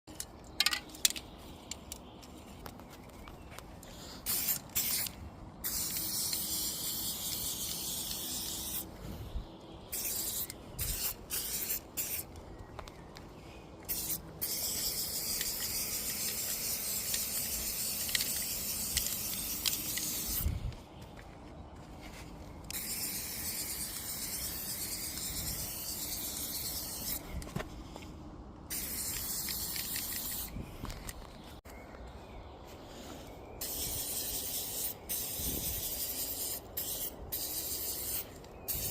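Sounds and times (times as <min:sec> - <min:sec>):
spray paint can hissing: 0:03.9 - 0:08.9, 0:09.9 - 0:12.3, 0:13.9 - 0:20.6, 0:22.7 - 0:27.3, 0:28.7 - 0:30.6, 0:33.6 - 0:38.9.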